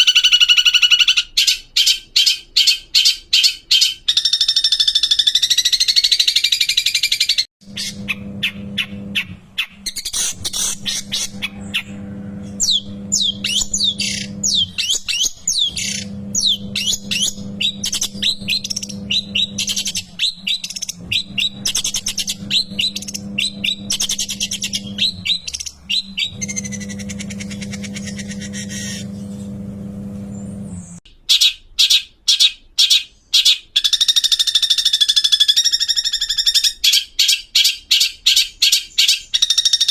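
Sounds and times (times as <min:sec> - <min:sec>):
steady low hum: 0:07.6 - 0:31.0.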